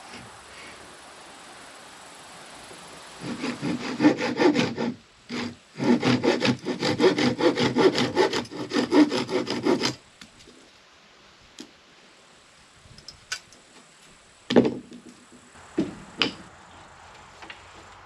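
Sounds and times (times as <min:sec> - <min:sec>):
hand saw cutting wood: 0:03.2 - 0:10.0.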